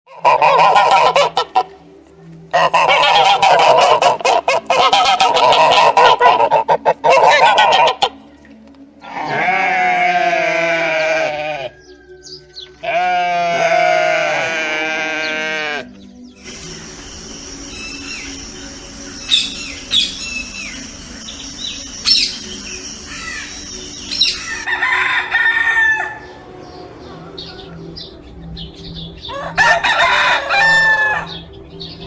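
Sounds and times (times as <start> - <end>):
geese honking: 0.1 - 8.3, 9.0 - 11.8, 12.6 - 17.0, 29.3 - 31.5.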